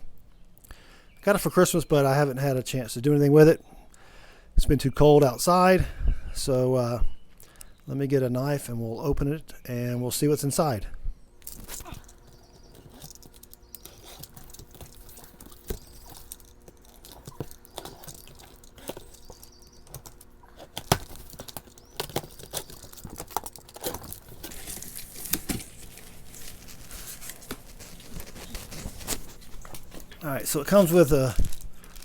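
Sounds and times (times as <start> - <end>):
cardboard and packing rustling: 11.4 - 32.0
cardboard scratching and tearing: 11.5 - 32.0.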